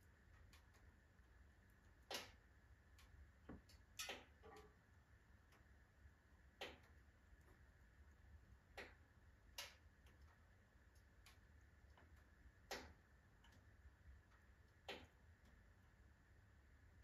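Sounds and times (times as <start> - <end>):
firewood crackling and popping: 0.0 - 17.0
low steady rumble: 0.0 - 17.0.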